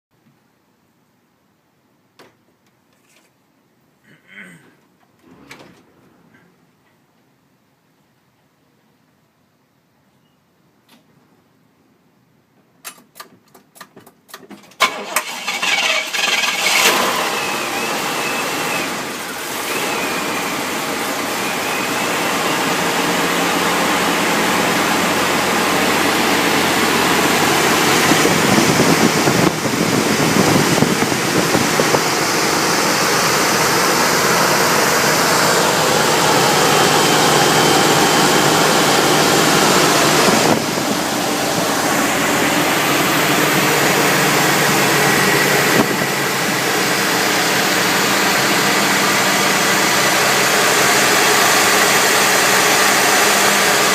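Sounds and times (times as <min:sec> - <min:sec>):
car engine cranking and running: 0:13.1 - 0:53.9.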